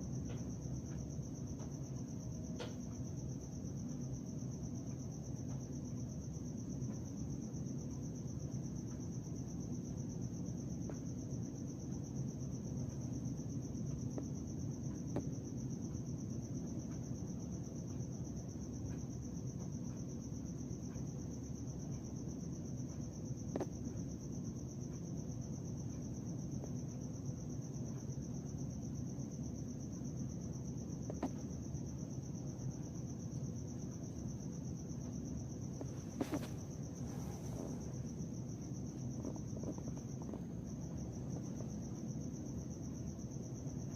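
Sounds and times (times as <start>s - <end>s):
low background rumble: 0.0s - 43.9s
night insects trilling: 0.0s - 43.9s
faint ticks: 10.7s - 28.8s, 31.0s - 31.8s.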